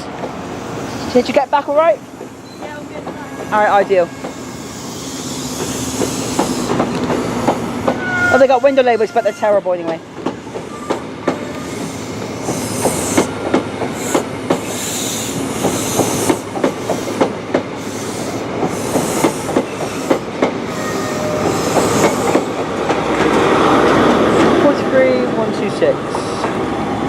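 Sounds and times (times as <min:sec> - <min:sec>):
train wheels clicking over rail joints: 0:00.0 - 0:24.6
wheel squeal: 0:08.0 - 0:09.6.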